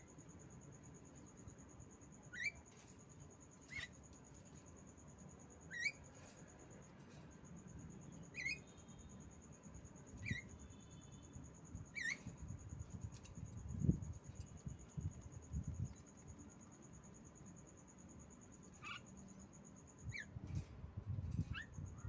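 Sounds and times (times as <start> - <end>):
myna bird chirps: 5.7 - 6.1, 8.2 - 9.0, 10.2 - 11.1, 11.8 - 12.6, 18.7 - 20.3.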